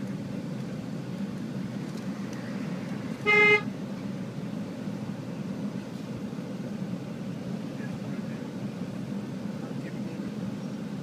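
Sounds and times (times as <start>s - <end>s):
road noise from moving car: 0.0s - 11.0s
car horn honk: 3.2s - 3.7s.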